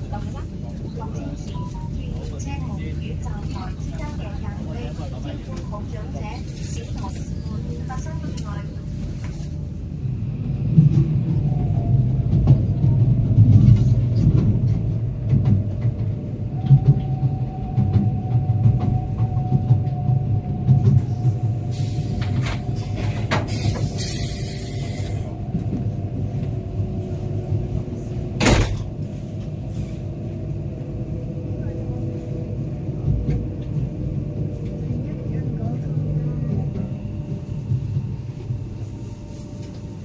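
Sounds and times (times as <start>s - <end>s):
train wheels rumbling on track: 0.0s - 40.0s
hiss: 23.4s - 25.2s.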